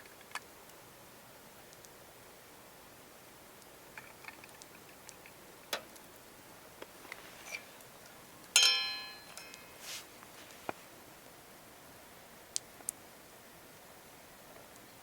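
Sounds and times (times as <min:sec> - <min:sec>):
sharp ringing clink: 0:08.6 - 0:09.7.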